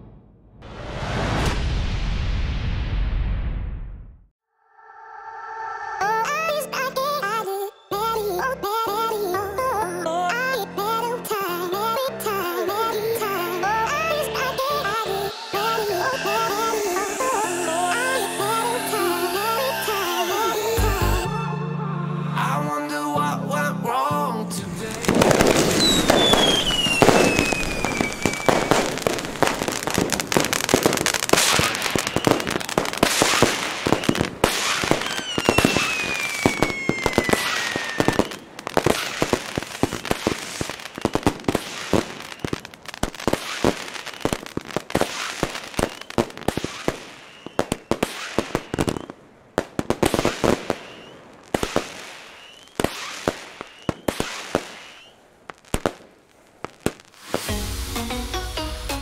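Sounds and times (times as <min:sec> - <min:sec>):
firework howling whistles: 0:04.5 - 0:08.1, 0:13.3 - 0:20.9, 0:25.0 - 0:49.2, 0:49.8 - 0:55.2, 0:57.1 - 0:57.8
firework crackling shots: 0:24.9 - 0:57.8.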